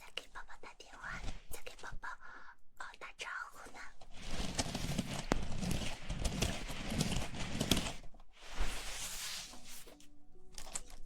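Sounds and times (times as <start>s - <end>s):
rustling: 4.0s - 11.0s.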